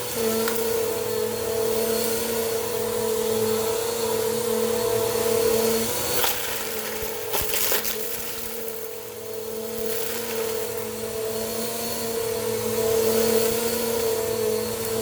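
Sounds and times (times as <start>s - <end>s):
vacuum cleaner humming: 0.0s - 15.0s
debris crackling in vacuum: 5.6s - 11.6s.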